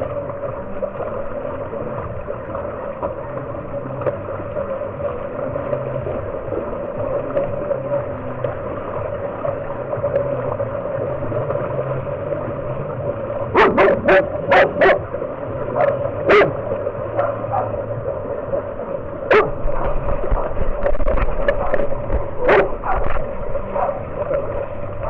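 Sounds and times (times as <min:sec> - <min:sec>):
steady hum: 0:00.0 - 0:25.0
dog barking: 0:13.6 - 0:15.0, 0:15.8 - 0:16.6, 0:17.2 - 0:17.8, 0:19.3 - 0:20.0, 0:22.4 - 0:23.1, 0:23.8 - 0:24.0.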